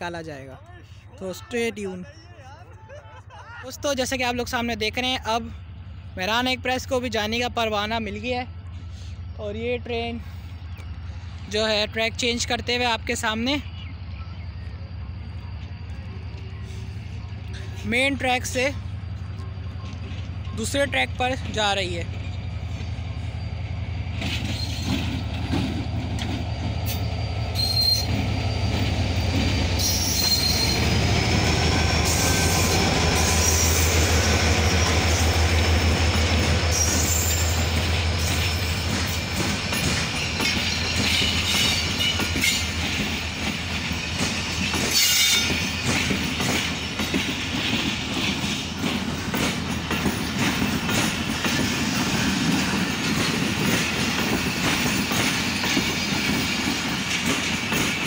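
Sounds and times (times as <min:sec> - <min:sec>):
diesel locomotive droning: 0:03.9 - 0:58.0
train wheels squealing: 0:04.8 - 0:58.0
wheels clicking over rail joints: 0:15.3 - 0:23.0, 0:24.1 - 0:58.0.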